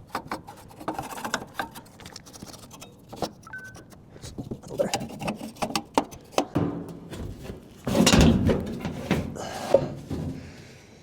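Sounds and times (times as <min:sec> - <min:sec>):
sheet metal clicks and knocks: 0:05.1 - 0:10.4.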